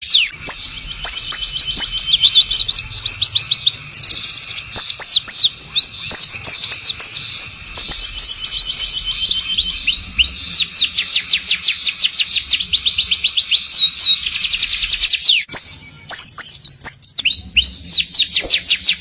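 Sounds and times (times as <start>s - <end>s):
bird twittering song: 0.0s - 19.0s.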